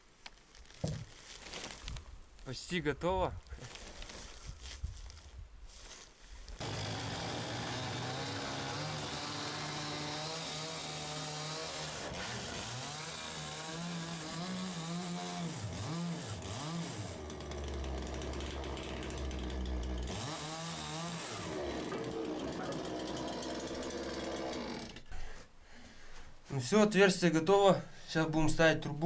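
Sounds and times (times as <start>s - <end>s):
power saw cutting wood: 6.6s - 25.1s.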